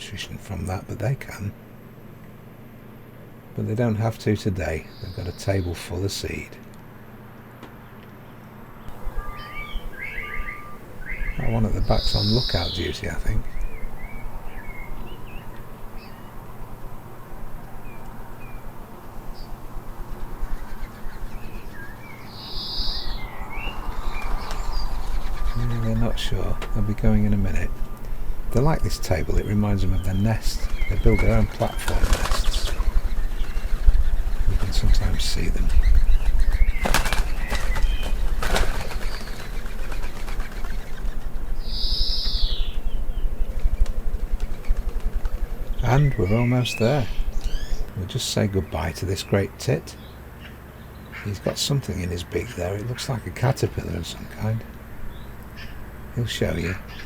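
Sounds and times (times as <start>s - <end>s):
low steady background hum: 0.0s - 57.0s
small birds chirping and whistling: 4.6s - 6.4s, 7.8s - 57.0s
wheezy bird call: 7.8s - 57.0s
wing flaps: 8.9s - 48.0s
low rumble: 13.4s - 31.8s.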